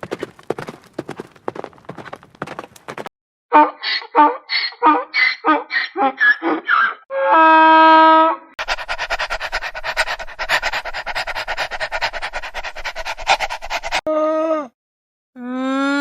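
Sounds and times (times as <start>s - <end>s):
animal pitched call: 8.6s - 14.0s
rapid pulsing animal call: 8.6s - 14.0s.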